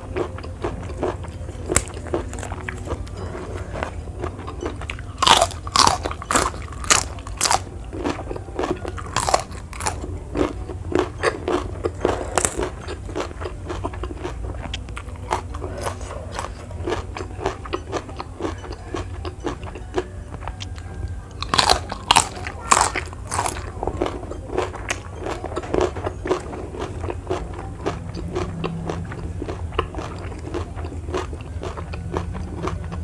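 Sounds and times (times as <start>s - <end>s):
chewing: 0.0s - 33.0s
crunching bites into vegetables: 5.2s - 17.6s, 21.4s - 23.6s.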